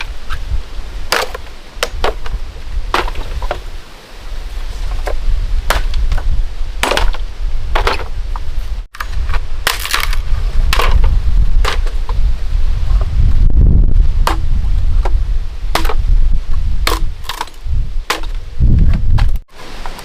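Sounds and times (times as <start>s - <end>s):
steady low rumble: 4.4s - 19.4s
chopping blows: 14.2s - 19.4s.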